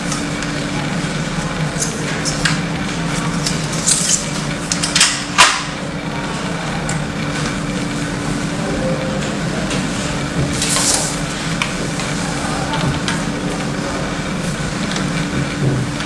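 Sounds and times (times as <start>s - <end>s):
steady low hum: 7.6s - 12.4s.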